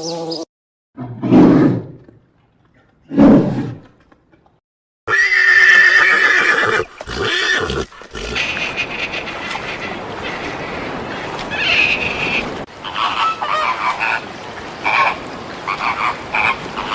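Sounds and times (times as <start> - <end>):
horse neighing: 5.1 - 10.7.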